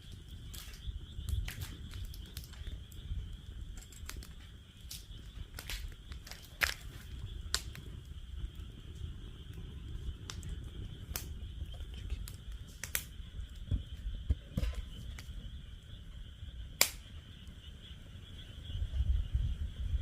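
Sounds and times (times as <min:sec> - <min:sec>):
wood fire crackling and popping: 0:00.0 - 0:18.8.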